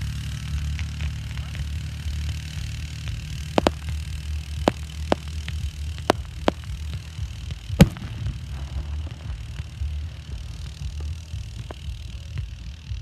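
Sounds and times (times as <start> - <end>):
steady low rumble: 0.0 - 13.0
fireworks bangs: 3.6 - 10.1.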